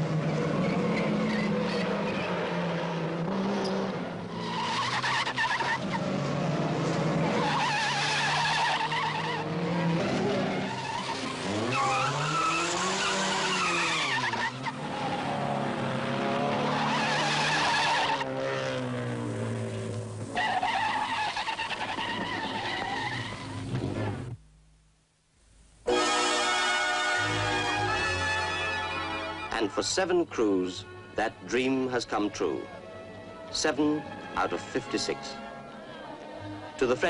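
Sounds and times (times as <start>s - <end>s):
rally car engines revving hard: 0.0s - 21.0s
tyres squealing: 4.4s - 6.1s, 7.2s - 15.6s, 16.5s - 18.6s, 20.3s - 24.3s.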